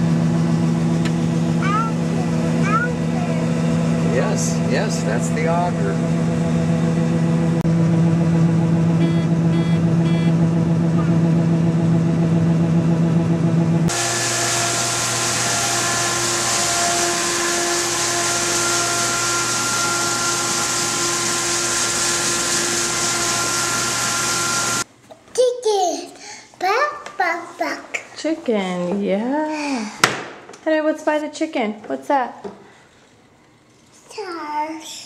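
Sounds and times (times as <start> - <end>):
farm machinery humming: 0.0 - 24.8
machine noise with loud hiss: 13.9 - 24.9.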